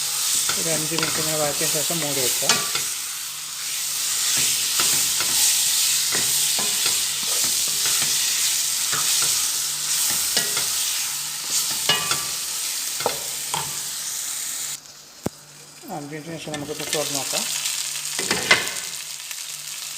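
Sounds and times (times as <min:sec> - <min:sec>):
chicken sizzling in hot oil: 0:00.0 - 0:19.9
spatula scraping a pan: 0:03.6 - 0:13.8.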